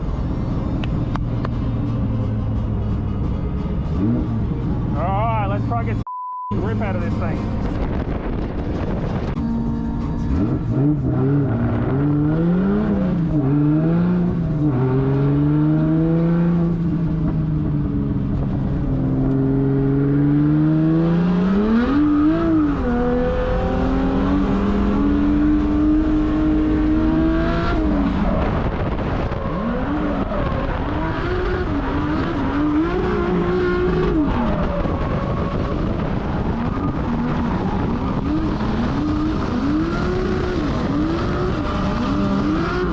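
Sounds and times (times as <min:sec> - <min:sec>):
drift car engine revving: 0:18.4 - 0:42.9.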